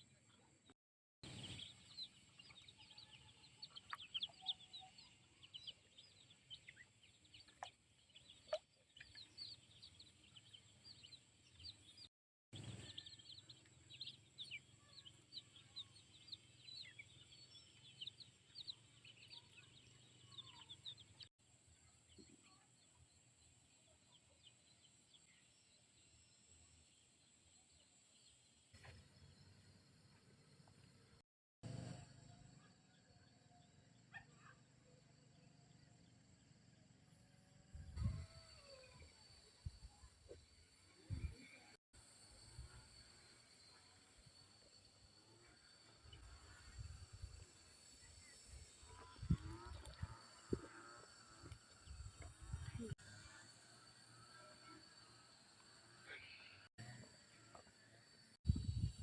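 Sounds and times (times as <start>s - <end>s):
chicks peeping and chirping: 1.3s - 12.0s, 12.6s - 21.2s.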